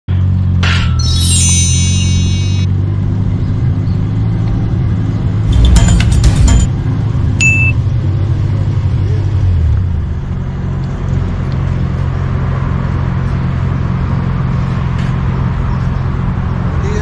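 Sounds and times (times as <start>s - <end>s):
short high beep: 0.9s - 2.7s, 7.4s - 7.8s.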